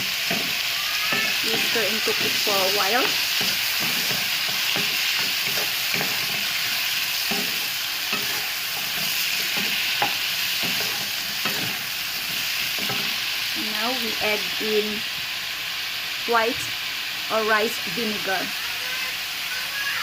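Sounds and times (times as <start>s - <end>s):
utensil scraping pan: 0.0s - 13.3s
fruit sizzling in frying pan: 0.0s - 20.0s.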